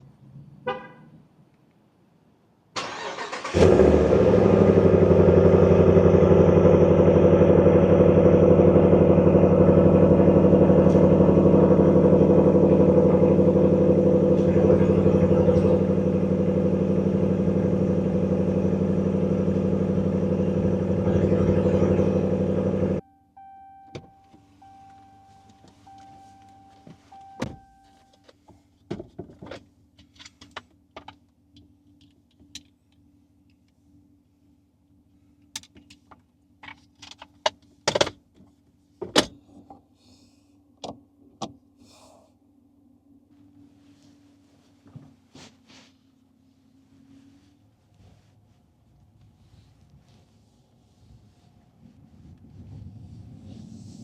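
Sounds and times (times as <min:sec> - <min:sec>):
car engine cranking and starting: 0:02.8 - 0:27.9
car engine idling: 0:02.8 - 0:28.0
short beep: 0:23.0 - 0:28.2.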